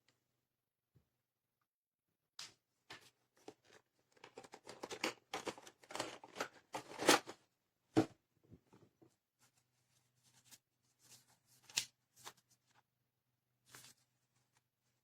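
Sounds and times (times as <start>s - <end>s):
rustling and scraping of handled objects: 2.9s - 7.4s, 8.0s - 12.8s.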